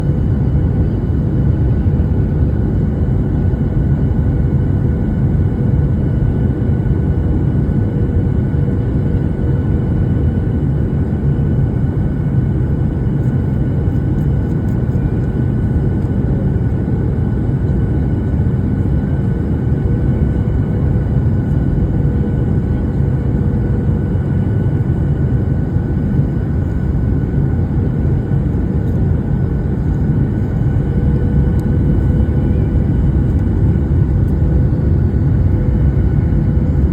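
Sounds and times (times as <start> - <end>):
airplane engines roaring: 0.0 - 36.9
faint whining tones: 25.9 - 36.9.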